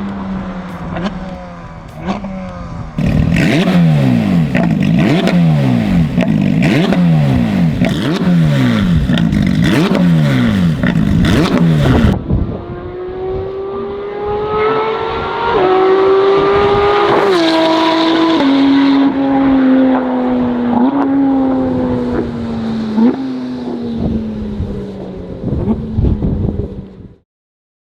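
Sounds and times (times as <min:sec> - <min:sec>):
car engine shifting gears: 0:00.8 - 0:12.2, 0:13.2 - 0:26.3
sports car engine revving: 0:01.9 - 0:12.2, 0:12.8 - 0:24.9.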